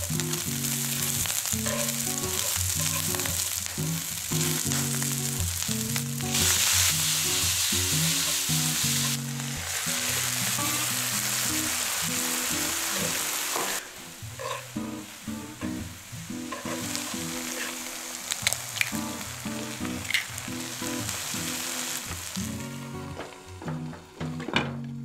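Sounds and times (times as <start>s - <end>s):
food sizzling in a wok: 0.0s - 23.9s.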